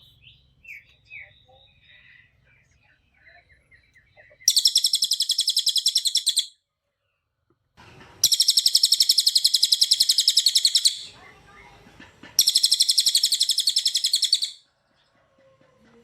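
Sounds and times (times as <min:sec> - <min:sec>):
songbird high-pitched trills: 0:00.0 - 0:06.6, 0:08.2 - 0:11.3, 0:12.4 - 0:14.6
soft bird chirps: 0:00.0 - 0:15.3.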